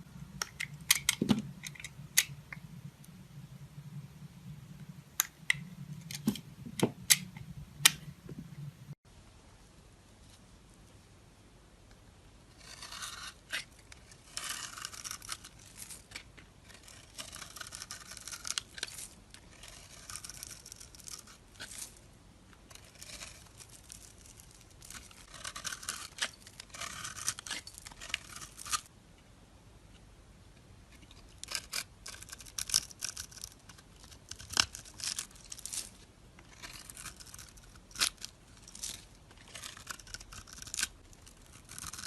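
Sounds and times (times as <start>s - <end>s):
knife cutting dry soap: 12.5s - 22.0s, 22.6s - 28.9s, 31.0s - 42.0s.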